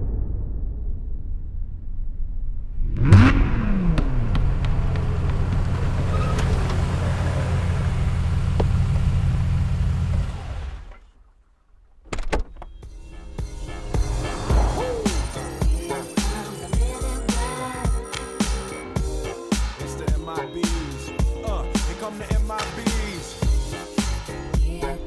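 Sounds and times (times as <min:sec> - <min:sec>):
deep boom: 0:00.0 - 0:06.7, 0:12.4 - 0:17.3
car engine starting and idling: 0:02.8 - 0:17.9.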